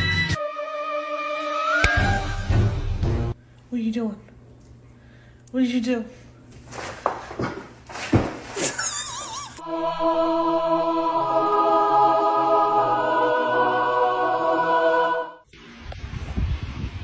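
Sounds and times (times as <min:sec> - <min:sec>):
held music chord: 0:09.6 - 0:15.4.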